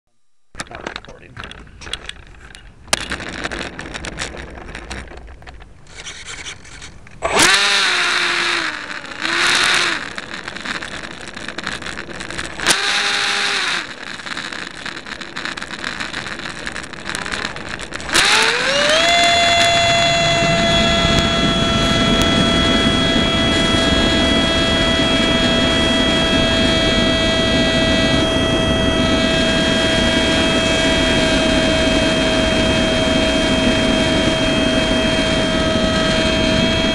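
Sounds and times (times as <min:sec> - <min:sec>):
electric ducted fan whine: 0:00.1 - 0:36.9
clicks: 0:00.6 - 0:20.1.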